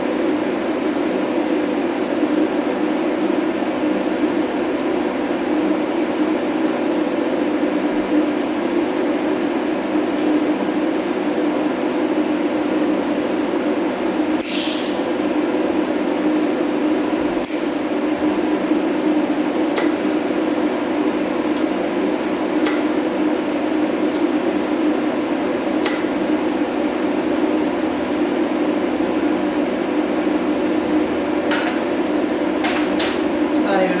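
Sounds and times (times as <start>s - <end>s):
brief hiss: 14.4s - 15.1s.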